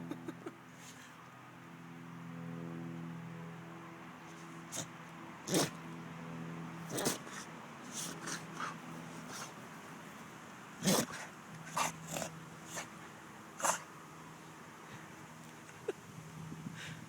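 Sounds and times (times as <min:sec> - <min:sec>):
dog sneezing: 0:05.5 - 0:05.8, 0:06.9 - 0:09.5.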